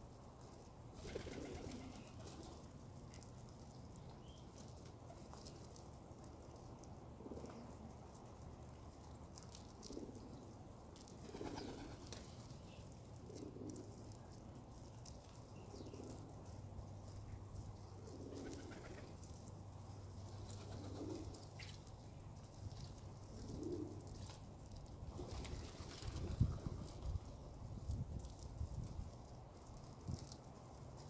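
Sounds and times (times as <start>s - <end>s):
pigeons cooing: 1.0s - 2.6s, 11.2s - 12.2s, 18.0s - 19.3s, 20.3s - 21.6s, 23.1s - 24.4s.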